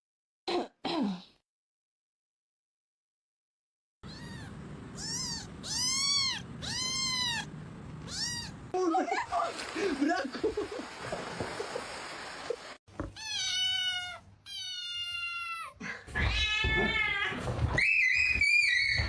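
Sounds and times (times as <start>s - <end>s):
cat meowing: 4.0s - 8.7s, 13.1s - 17.6s.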